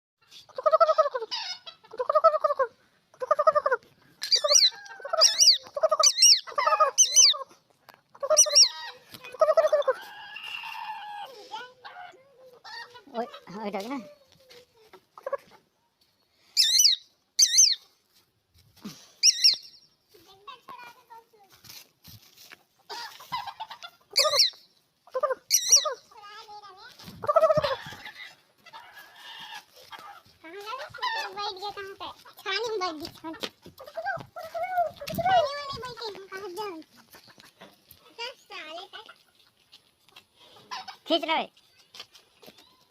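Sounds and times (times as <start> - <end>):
birds clucking: 0.2 - 17.8, 19.1 - 19.8, 22.5 - 26.2, 26.9 - 42.9
high-pitched bird chirps: 4.2 - 7.4, 8.3 - 10.8, 16.6 - 17.8, 19.2 - 19.9, 24.2 - 24.7, 25.5 - 26.0.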